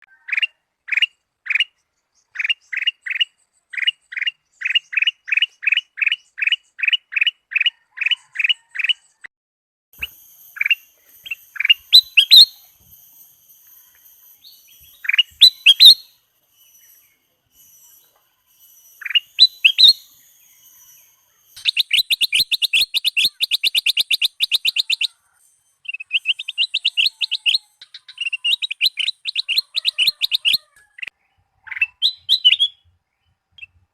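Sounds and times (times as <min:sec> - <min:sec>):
bulbul singing whistled notes: 0:10.0 - 0:33.8.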